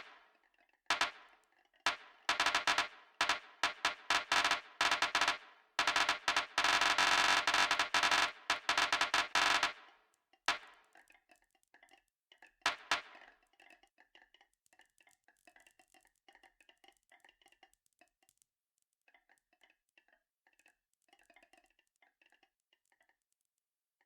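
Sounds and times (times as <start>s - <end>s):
marbles rolling down track: 1.9s - 9.7s.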